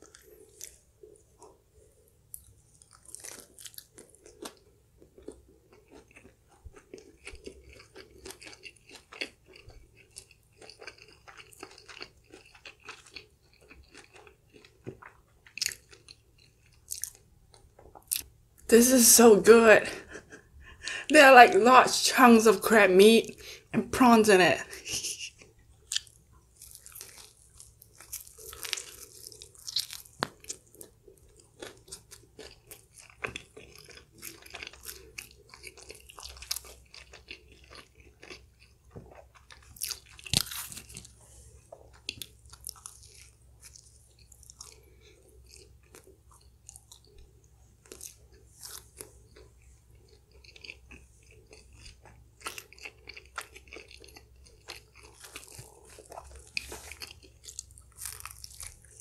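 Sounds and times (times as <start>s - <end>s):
person chewing crunchy food: 0.0s - 18.3s, 24.8s - 59.0s
loud food crackle: 2.4s - 4.6s, 25.9s - 38.7s, 39.5s - 41.2s, 51.9s - 59.0s.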